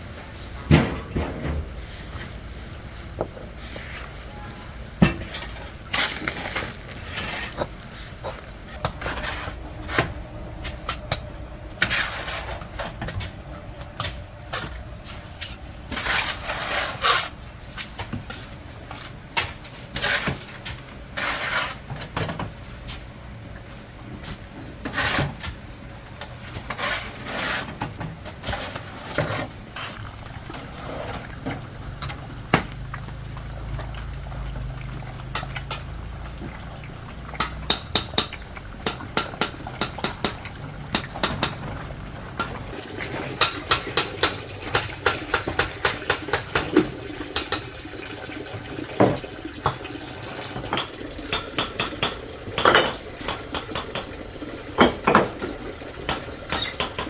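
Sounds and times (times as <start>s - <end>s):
hard objects scraping and clattering: 0.0s - 10.2s.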